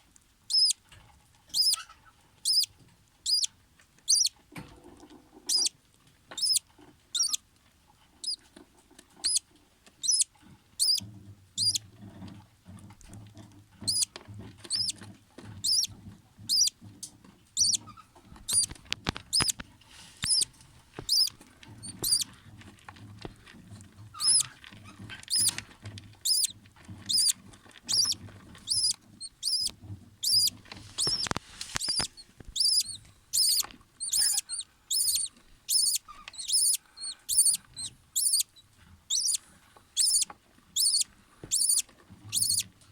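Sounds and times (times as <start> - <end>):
bird chicks peeping: 0.5 - 0.8, 1.5 - 7.4, 8.2 - 8.5, 9.1 - 12.3, 13.8 - 19.6, 20.2 - 22.3, 23.0 - 42.8.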